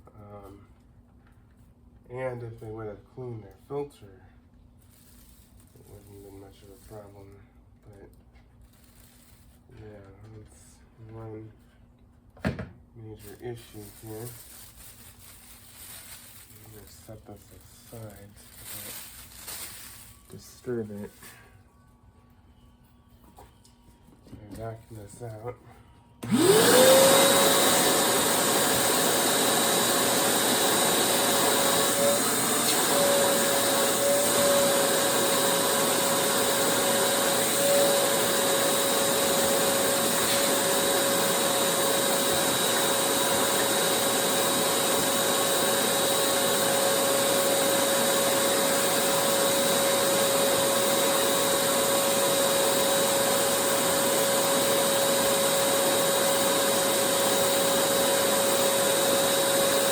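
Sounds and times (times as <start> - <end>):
vacuum cleaner motor whining: 26.2 - 59.9.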